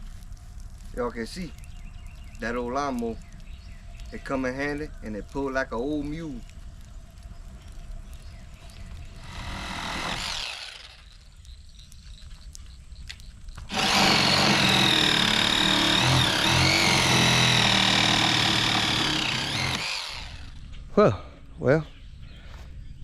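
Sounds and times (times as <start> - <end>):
lawnmower engine running: 9.2 - 11.0, 13.7 - 20.6.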